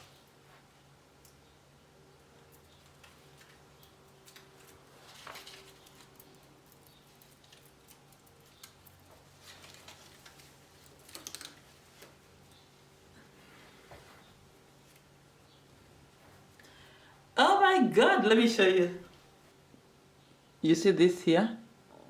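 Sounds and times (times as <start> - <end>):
low steady hum: 0.0 - 22.0
decorations rustling and clicking: 2.3 - 16.7.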